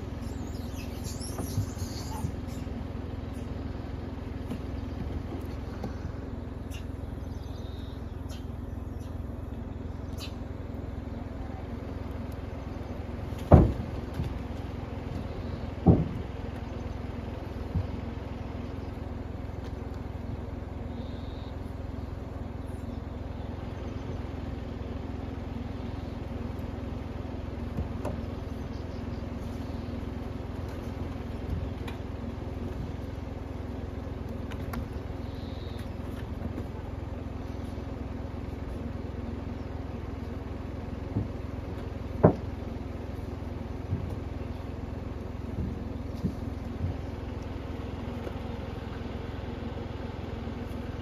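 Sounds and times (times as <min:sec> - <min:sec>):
car engine idling: 0:00.0 - 0:51.0
monkeys landing on car body: 0:00.6 - 0:02.7, 0:13.1 - 0:18.2.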